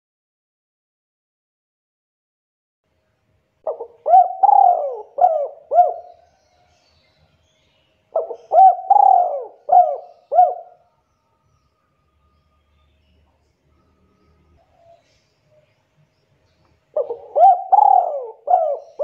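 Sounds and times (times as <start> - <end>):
dove cooing: 3.6 - 6.4, 8.1 - 10.8, 16.9 - 19.0.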